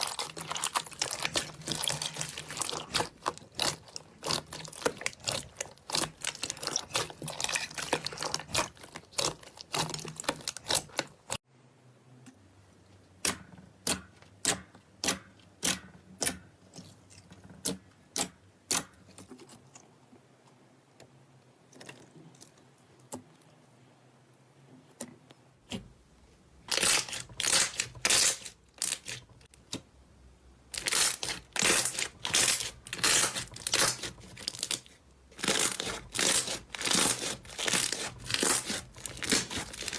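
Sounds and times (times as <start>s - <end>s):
slime crackling and popping: 0.0s - 11.4s, 26.7s - 29.2s, 30.8s - 39.9s.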